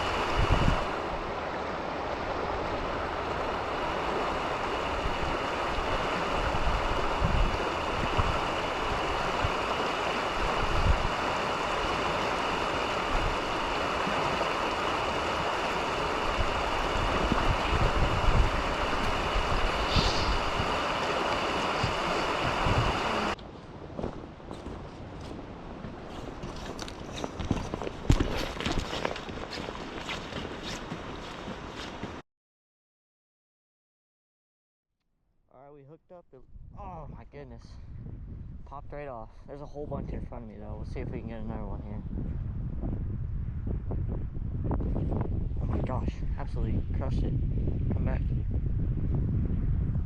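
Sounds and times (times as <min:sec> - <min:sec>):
creek water rushing: 0:00.0 - 0:23.4
wind buffeting microphone: 0:00.0 - 0:32.2, 0:36.4 - 0:50.0.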